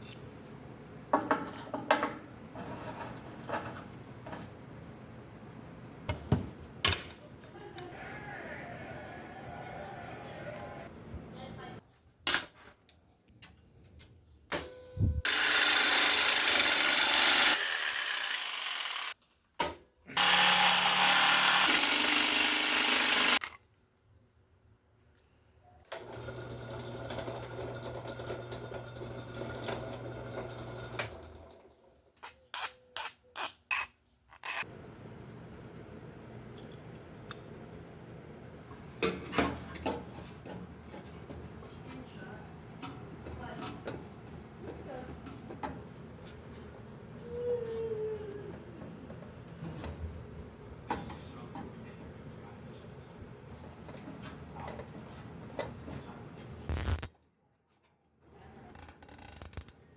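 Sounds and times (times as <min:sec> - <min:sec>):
power tool running: 0:15.2 - 0:19.2, 0:20.2 - 0:23.4.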